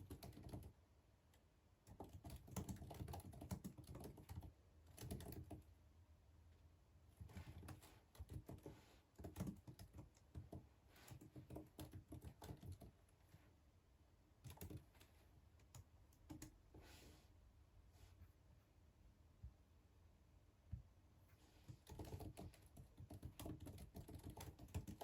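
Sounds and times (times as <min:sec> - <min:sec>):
typing on computer keyboard: 0:00.0 - 0:00.8, 0:01.8 - 0:05.7, 0:07.2 - 0:13.0, 0:14.4 - 0:16.6, 0:21.7 - 0:25.0.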